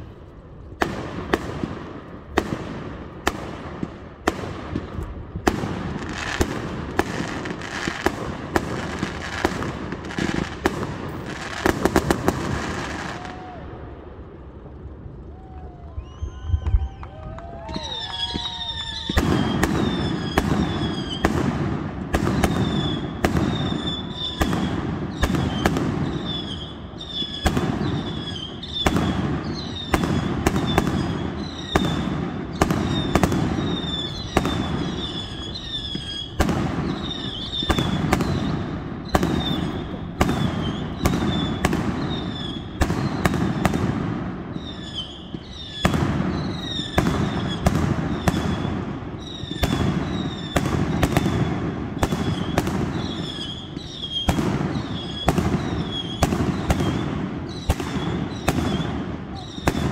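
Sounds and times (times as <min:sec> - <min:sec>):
fireworks bangs: 0:00.0 - 0:59.9
fireworks whistles: 0:00.8 - 0:13.6, 0:15.3 - 0:59.9.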